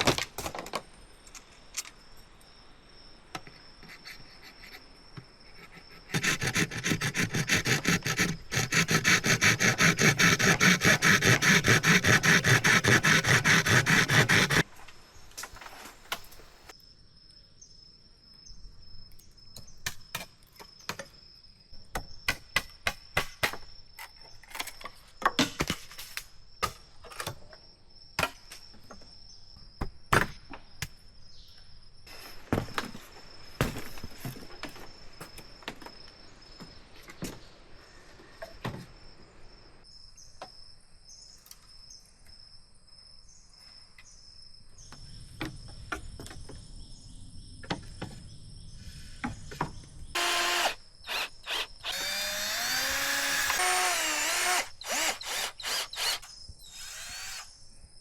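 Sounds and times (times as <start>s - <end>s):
bamboo being sawn: 3.9s - 14.7s, 50.2s - 57.4s
insect trilling: 50.2s - 57.6s.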